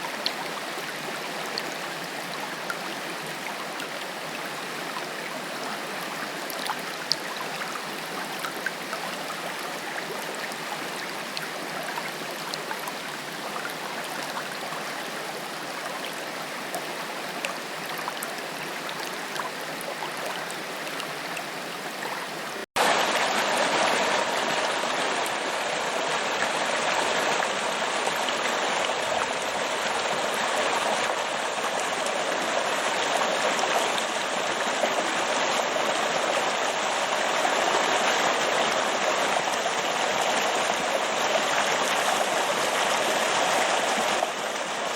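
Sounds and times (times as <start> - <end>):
water splashes and drips: 0.0 - 44.9
waterfall rushing over rocks: 0.0 - 44.9.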